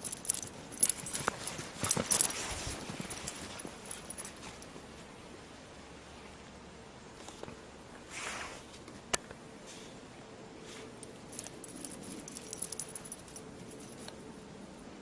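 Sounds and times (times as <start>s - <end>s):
footsteps crunching in snow: 0.3s - 5.2s.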